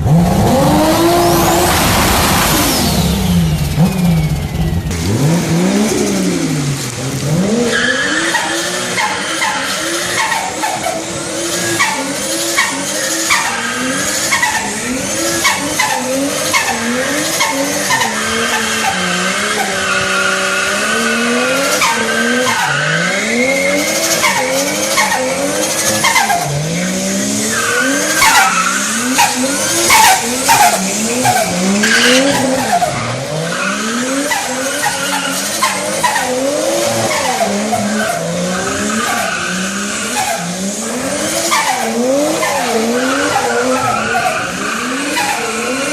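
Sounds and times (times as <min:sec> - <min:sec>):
car engines revving hard: 0:00.0 - 0:45.9.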